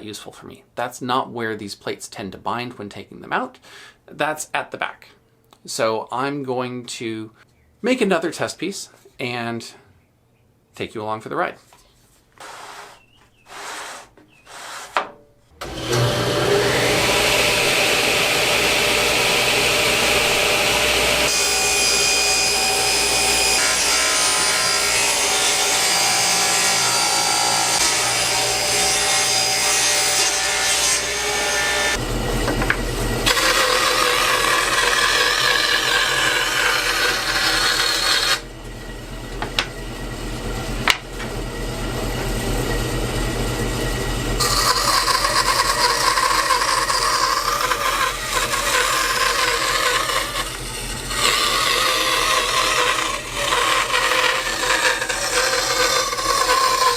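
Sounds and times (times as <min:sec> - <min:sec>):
power tools cutting wood: 0:15.6 - 0:42.8, 0:44.2 - 0:56.9.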